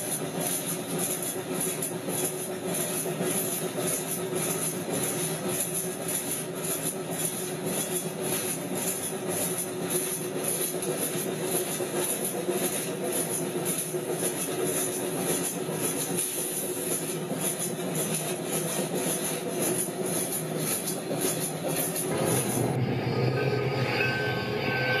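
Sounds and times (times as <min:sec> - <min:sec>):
rapid rattle: 0:00.0 - 0:23.0
train rolling rumble: 0:00.0 - 0:25.0
steady hum: 0:21.7 - 0:25.0.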